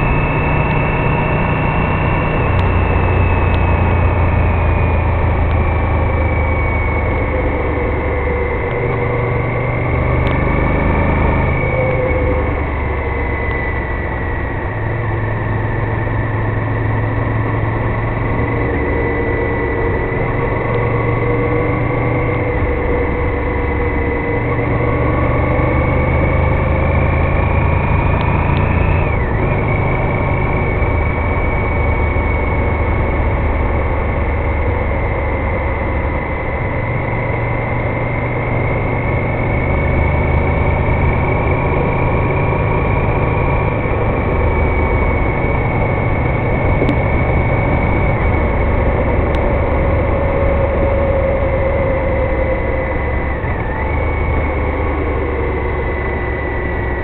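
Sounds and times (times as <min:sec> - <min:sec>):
motorcycle engine running: 0:00.0 - 0:57.0
wind noise: 0:40.4 - 0:57.0.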